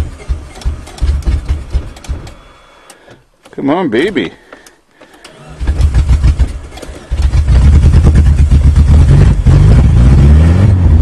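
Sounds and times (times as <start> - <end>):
car engine starting and revving: 5.3 - 11.0.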